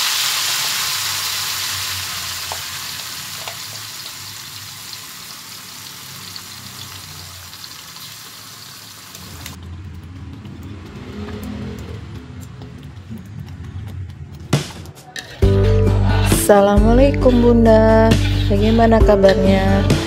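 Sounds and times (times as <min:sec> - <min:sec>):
paste sizzling in hot oil: 0:00.0 - 0:09.6.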